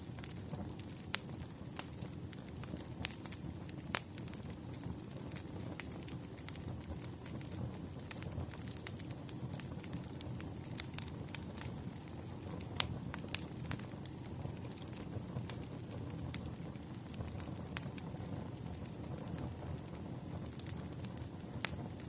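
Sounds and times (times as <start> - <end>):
fire crackles and pops: 0.0 - 22.0
firewood burning rumble: 0.0 - 22.0.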